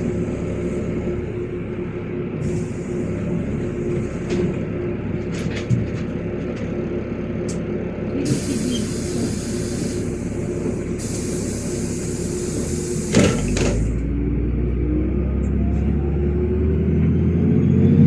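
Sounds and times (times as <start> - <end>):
bus engine idling: 0.0 - 17.6
bus doors shutting with a thud: 7.5 - 14.1
compressed air hissing: 8.3 - 13.9.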